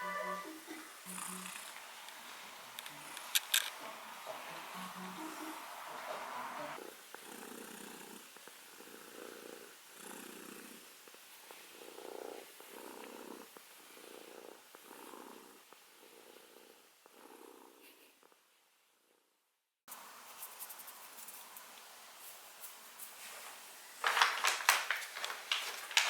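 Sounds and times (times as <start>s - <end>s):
cat purring: 0.6s - 19.3s.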